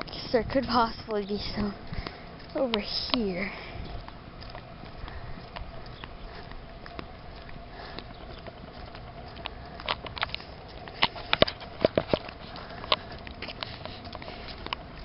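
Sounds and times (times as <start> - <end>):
faint steady hum: 0.0 - 15.0
footsteps: 0.0 - 15.0.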